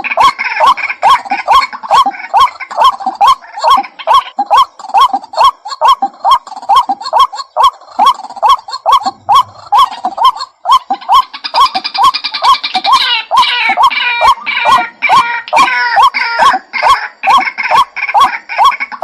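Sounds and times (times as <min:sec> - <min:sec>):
waterhen calling: 0:00.0 - 0:19.0.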